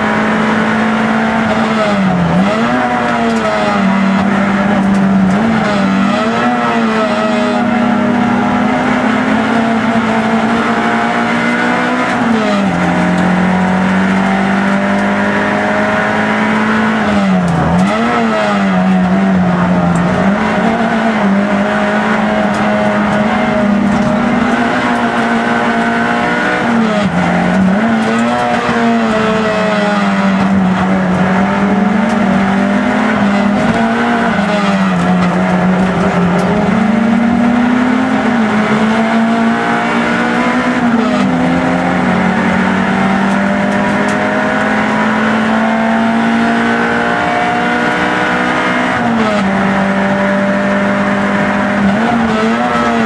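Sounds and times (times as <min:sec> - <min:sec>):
race car engine at high revs: 0:00.0 - 0:53.0.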